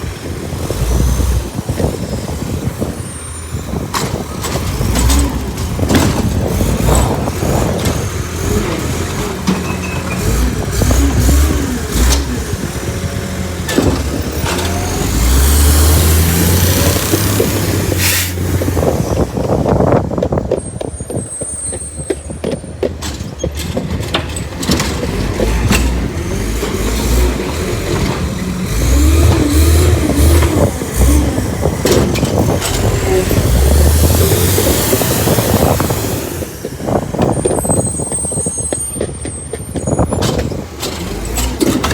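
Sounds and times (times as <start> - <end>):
truck engine revving: 0.0 - 20.5, 23.1 - 41.9
hydraulic hiss: 18.0 - 18.5.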